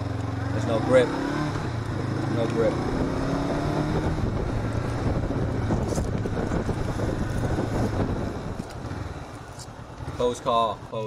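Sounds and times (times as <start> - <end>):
motorcycle engine running: 0.0 - 11.0
wind on microphone: 1.5 - 9.4.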